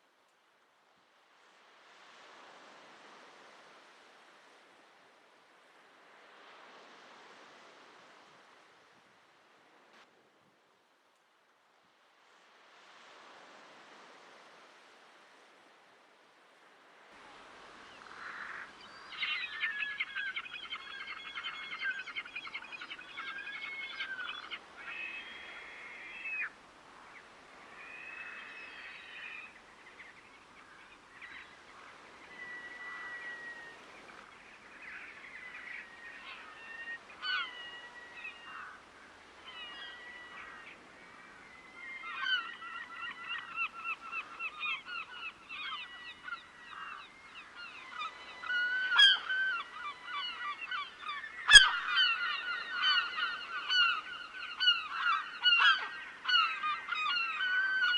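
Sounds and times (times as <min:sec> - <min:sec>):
waterbirds honking: 0:47.6 - 0:57.9.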